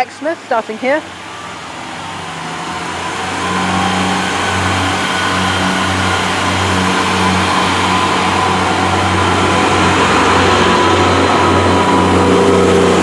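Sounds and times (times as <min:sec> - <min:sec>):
diesel train engines humming: 0:00.0 - 0:13.0.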